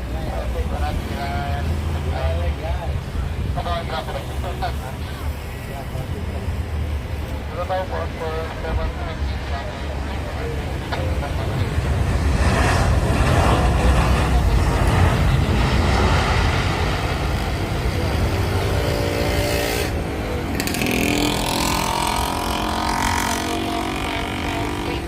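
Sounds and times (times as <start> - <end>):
jet engines roaring: 0.0 - 25.0
engine tones shifting in pitch: 7.8 - 25.0.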